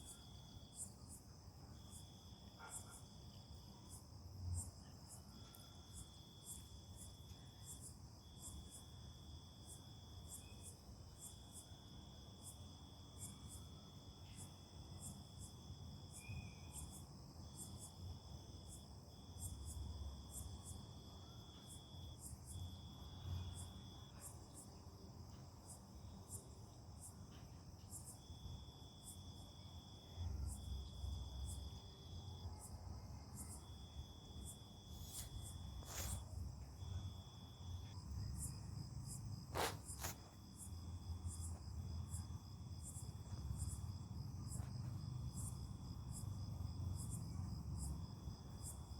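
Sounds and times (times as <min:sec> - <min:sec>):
insects trilling: 0:30.5 - 0:44.7
repeating insect chirp: 0:33.4 - 0:36.2.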